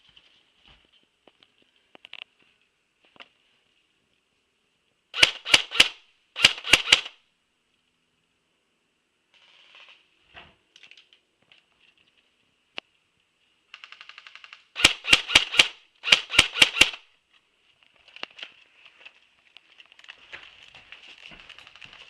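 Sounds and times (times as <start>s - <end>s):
airsoft guns firing: 5.2s - 7.2s, 14.7s - 17.0s.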